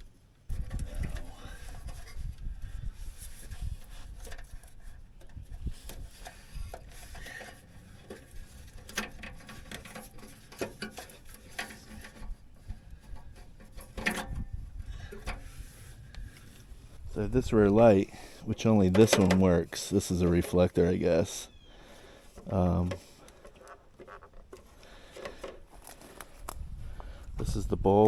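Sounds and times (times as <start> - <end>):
hands rubbing wiring: 22.2 - 26.6.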